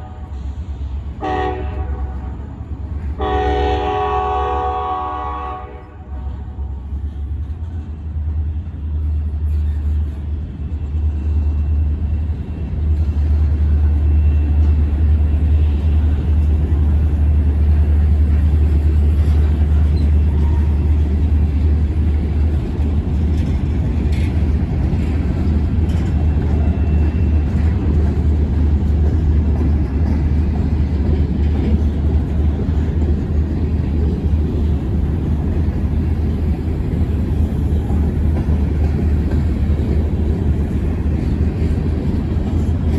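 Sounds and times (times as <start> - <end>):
freight train rumbling: 0.0 - 42.9.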